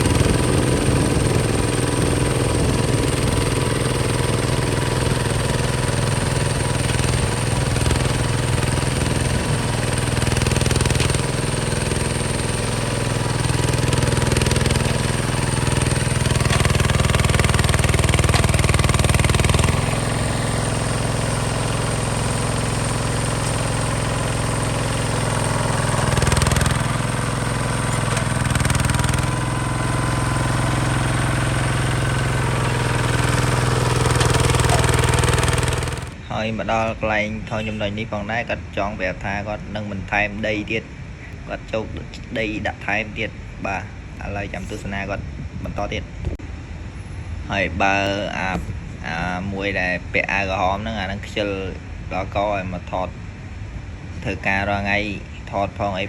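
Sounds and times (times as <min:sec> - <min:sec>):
tractor diesel engine running: 0:00.0 - 0:36.3.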